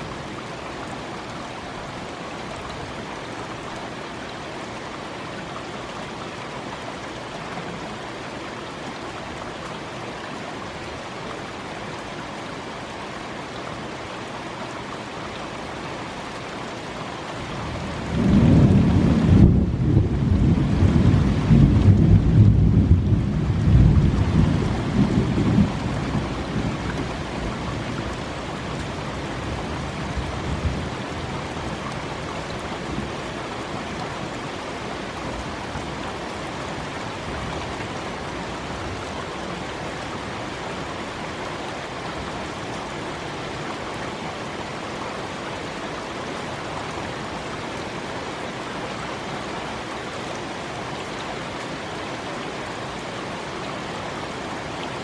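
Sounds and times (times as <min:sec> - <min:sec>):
steady rain: 0:00.0 - 0:55.0
low roll of thunder: 0:17.8 - 0:26.8.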